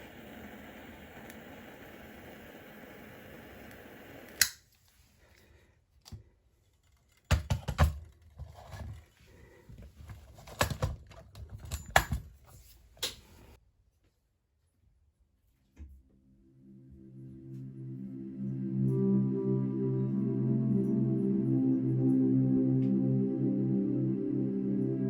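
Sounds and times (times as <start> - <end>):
steady hiss: 0.0 - 4.4
fire crackling and popping: 0.0 - 4.6.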